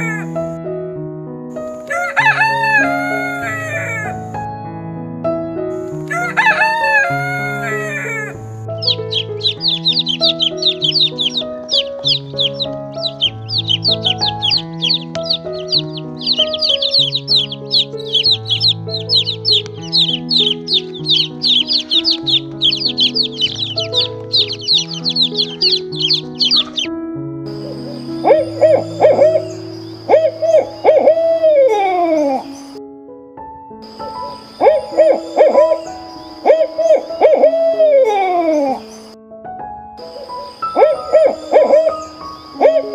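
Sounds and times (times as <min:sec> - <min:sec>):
soft background music: 0:00.0 - 0:42.9
rooster crowing: 0:01.8 - 0:04.1, 0:06.1 - 0:26.9, 0:40.3 - 0:42.9
chicks peeping: 0:01.8 - 0:04.2, 0:06.0 - 0:26.9, 0:27.5 - 0:32.8, 0:33.9 - 0:39.1, 0:40.0 - 0:42.9.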